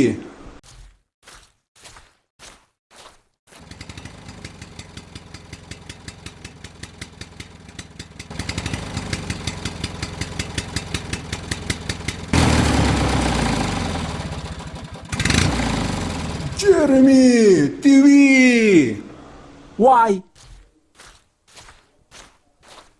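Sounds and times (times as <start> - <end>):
small engine ticking: 3.6 - 17.0.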